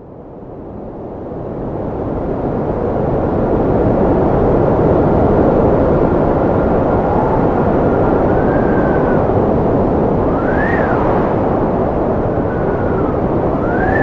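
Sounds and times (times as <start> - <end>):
strong wind rushing: 3.7 - 14.0
wind whistling: 5.4 - 14.0.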